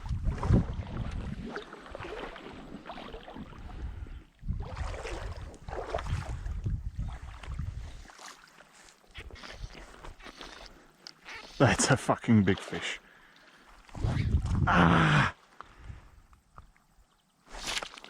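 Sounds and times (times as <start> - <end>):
wind on microphone: 0.0 - 2.1, 3.4 - 8.1, 13.9 - 15.0
water sloshing and splashing: 0.0 - 14.6, 16.6 - 18.0.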